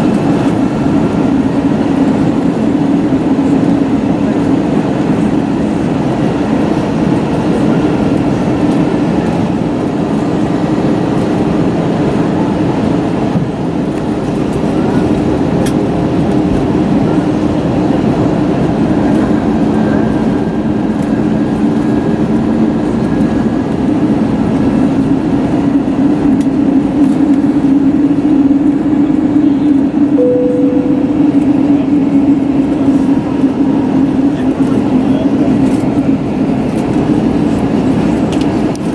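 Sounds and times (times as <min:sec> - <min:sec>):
low engine hum: 0:13.3 - 0:38.9.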